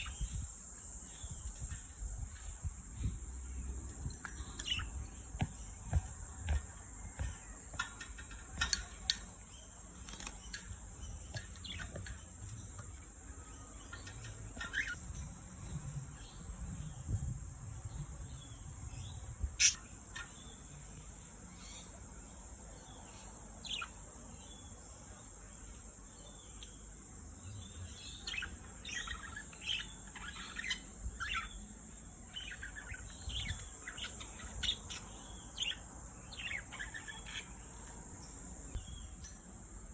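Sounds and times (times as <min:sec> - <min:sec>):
high-pitched hiss: 0:00.0 - 0:06.2
bird chirps: 0:04.0 - 0:05.7, 0:13.4 - 0:17.0, 0:18.4 - 0:20.7, 0:27.7 - 0:31.7, 0:32.3 - 0:39.4.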